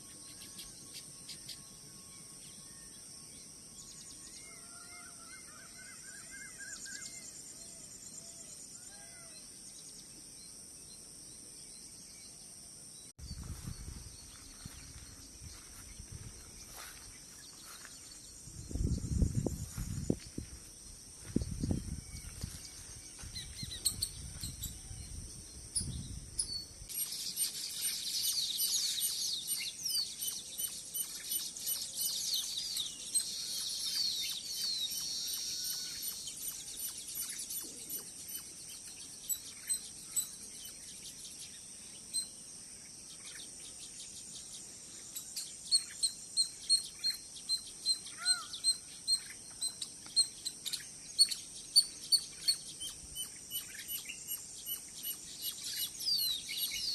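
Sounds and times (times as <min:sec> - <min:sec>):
high insect hum: 0:00.0 - 0:56.9
birds chirping: 0:13.2 - 0:42.2, 0:43.2 - 0:56.9.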